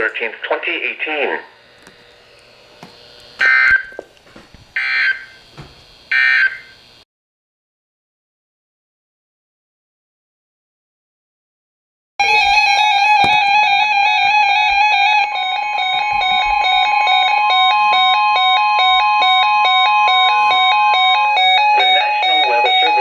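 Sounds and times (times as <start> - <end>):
buzzy synthesized tones: 12.2 - 23.0.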